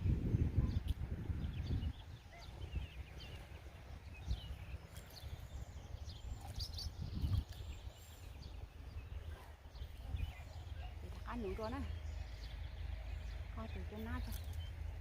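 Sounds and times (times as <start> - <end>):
low rumble of wind: 0.0 - 15.0
small birds chirping: 0.0 - 15.0.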